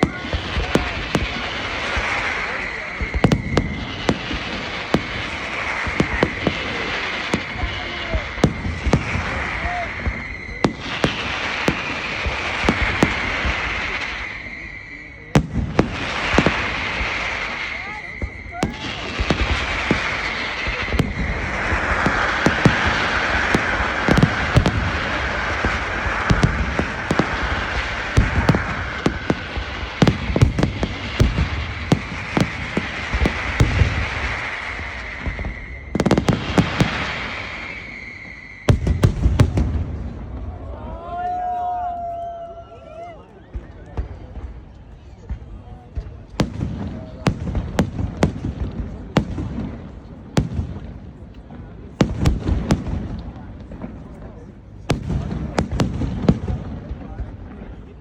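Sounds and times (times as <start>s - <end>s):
fireworks crackling hiss: 0.0s - 41.8s
fireworks banging: 0.0s - 42.0s, 43.5s - 58.0s
high whistle: 1.8s - 6.6s, 7.2s - 15.4s, 16.1s - 30.2s, 33.3s - 39.5s.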